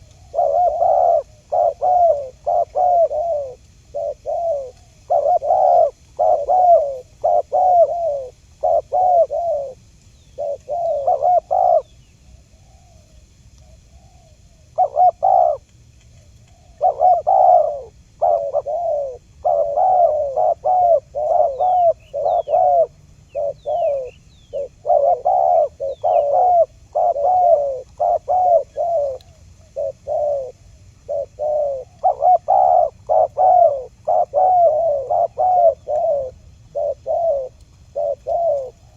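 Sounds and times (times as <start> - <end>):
dove cooing: 0.0 - 38.9
small bird chirps: 16.4 - 38.9.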